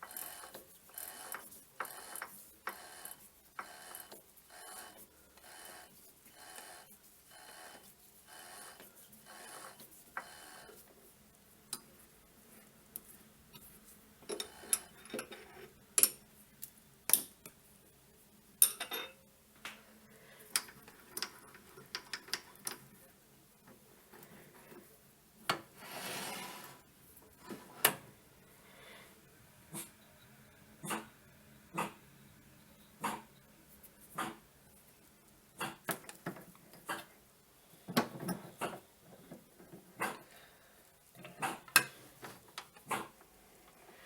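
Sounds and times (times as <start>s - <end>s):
metal scraping: 25.7s - 27.8s.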